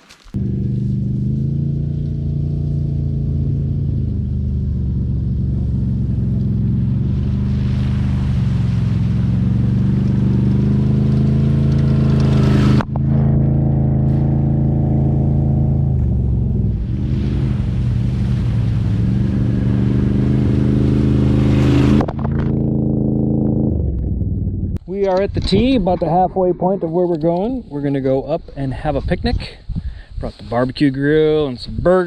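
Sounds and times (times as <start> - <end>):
atv engine running: 0.4 - 24.8.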